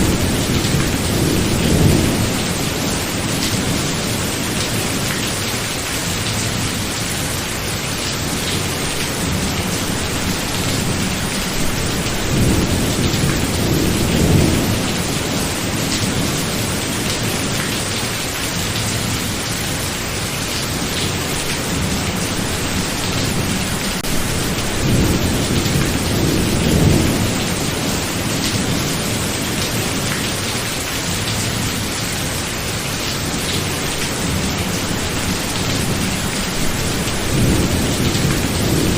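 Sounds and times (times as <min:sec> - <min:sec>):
low thunder rumbling: 0:00.0 - 0:05.0, 0:08.4 - 0:17.5, 0:20.9 - 0:29.5, 0:33.5 - 0:38.9
heavy rain: 0:00.0 - 0:38.9.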